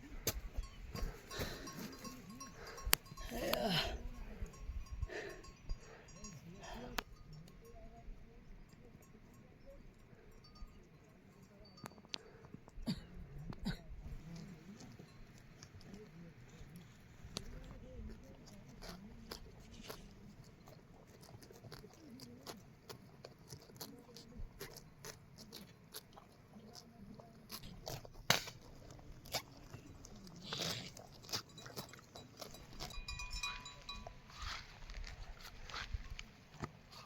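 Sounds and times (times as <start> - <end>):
goats crunching and chewing: 0.0 - 7.6, 10.1 - 37.0.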